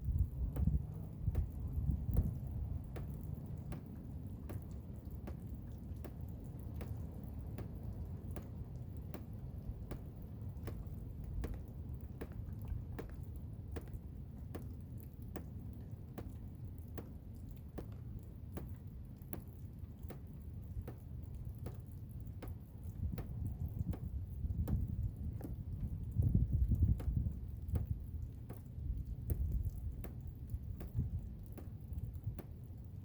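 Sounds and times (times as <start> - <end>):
sharp irregular ticks: 2.2 - 9.3.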